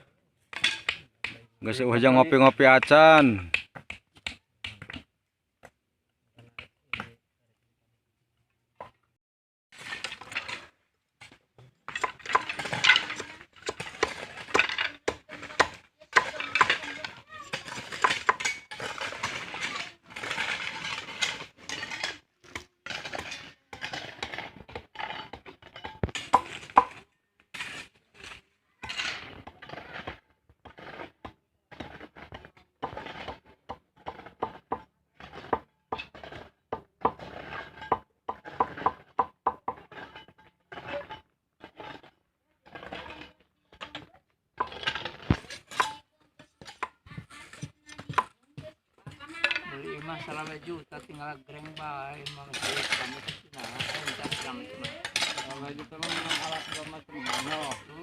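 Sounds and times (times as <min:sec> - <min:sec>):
hard objects clinking and knocking: 0:09.8 - 0:27.1, 0:42.7 - 0:58.0.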